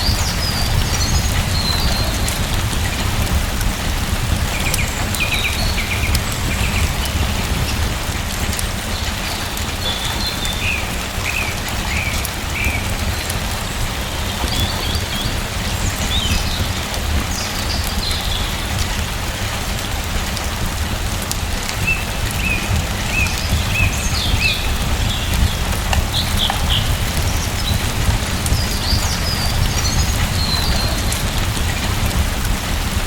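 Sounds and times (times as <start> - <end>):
rain pattering: 0.0 - 33.0
deep low rumble: 22.6 - 33.0.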